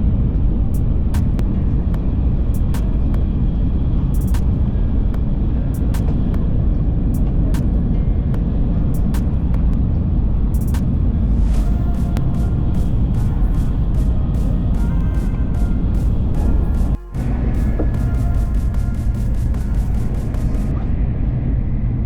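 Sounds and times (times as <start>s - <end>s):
train running low rumble: 0.0s - 22.0s.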